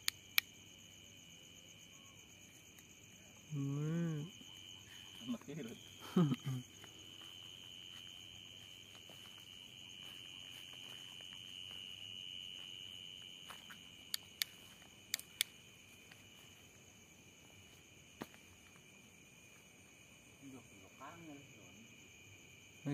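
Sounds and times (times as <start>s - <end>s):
sharp clicks: 0.0s - 0.5s, 14.1s - 15.6s
night insects trilling: 0.0s - 22.9s.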